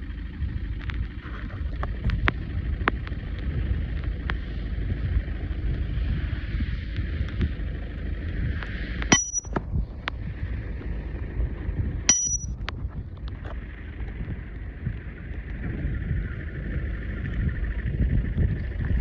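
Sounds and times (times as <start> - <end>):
high-pitched metallic rings: 9.1 - 9.6, 12.1 - 12.6
wind buffeting microphone: 9.6 - 19.0.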